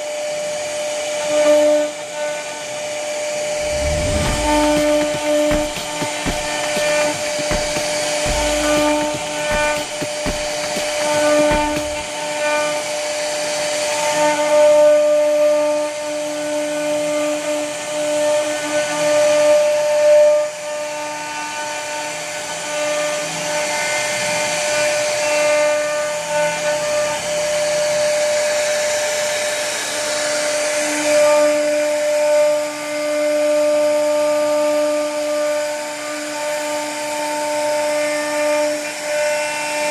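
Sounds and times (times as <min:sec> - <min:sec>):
bit cutting wood: 0:03.4 - 0:12.8.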